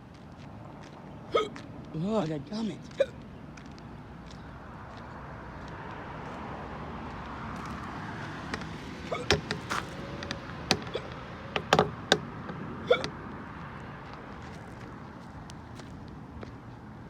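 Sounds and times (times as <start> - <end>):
person hiccuping: 1.3 - 1.6, 2.9 - 3.2, 12.8 - 13.2.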